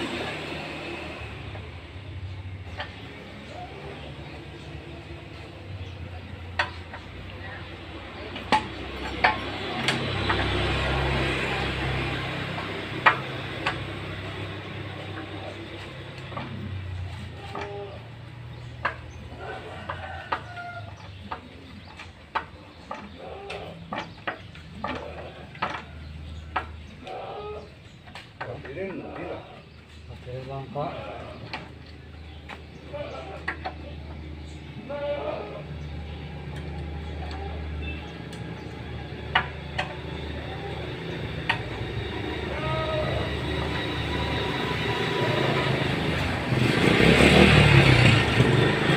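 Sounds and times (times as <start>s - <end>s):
chickens clucking: 0.0s - 42.4s
metal tools clinking on engine: 5.6s - 27.0s.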